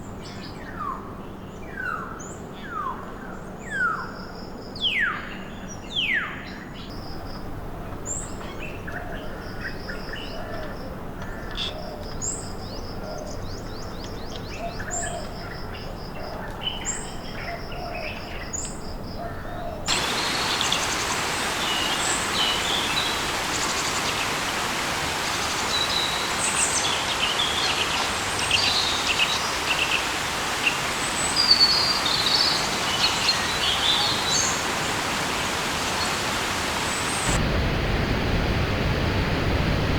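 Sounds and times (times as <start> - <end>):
birds calling: 19.6 - 37.4
steady hiss: 19.9 - 39.9.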